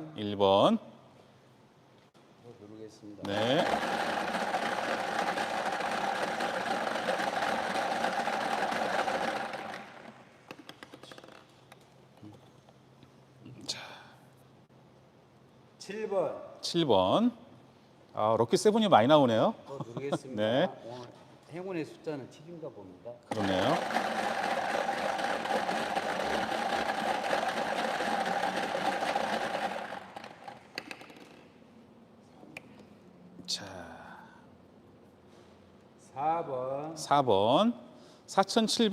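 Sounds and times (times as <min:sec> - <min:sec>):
machine whirring rattle: 0:03.3 - 0:11.4, 0:23.3 - 0:31.5.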